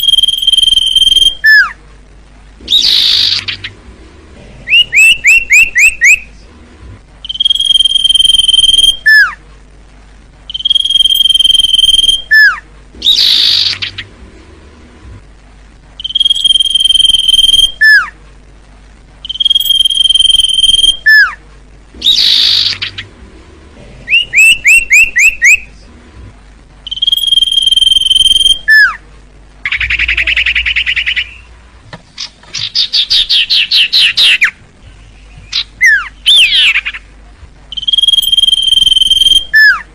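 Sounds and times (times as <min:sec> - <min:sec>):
bird whistling song: 0:00.0 - 0:01.8, 0:02.7 - 0:03.8, 0:04.7 - 0:06.3, 0:07.2 - 0:09.4, 0:10.5 - 0:14.1, 0:16.0 - 0:18.2, 0:19.2 - 0:21.4, 0:22.0 - 0:23.1, 0:24.1 - 0:25.7, 0:26.8 - 0:29.0, 0:29.6 - 0:31.5, 0:32.2 - 0:37.1, 0:37.7 - 0:39.9
buzzy bird trilling: 0:00.0 - 0:01.8, 0:02.6 - 0:03.8, 0:04.6 - 0:06.4, 0:07.2 - 0:09.4, 0:10.5 - 0:14.2, 0:16.0 - 0:18.2, 0:19.2 - 0:21.4, 0:22.0 - 0:23.2, 0:24.1 - 0:25.8, 0:26.8 - 0:29.0, 0:29.6 - 0:39.9
short rising bird chirps: 0:04.7 - 0:06.3, 0:07.2 - 0:09.3, 0:16.0 - 0:18.1, 0:24.1 - 0:25.6, 0:26.9 - 0:29.0, 0:37.7 - 0:39.8.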